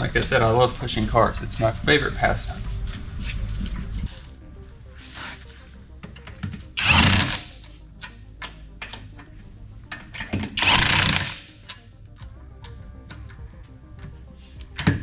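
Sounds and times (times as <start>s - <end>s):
impact wrench bursts: 6.8s - 7.6s, 10.2s - 11.8s.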